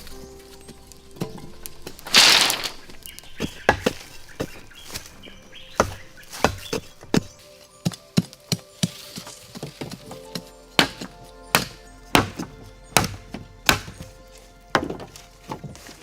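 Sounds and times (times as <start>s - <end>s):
hand tool knocking on wood: 5.7s - 7.3s.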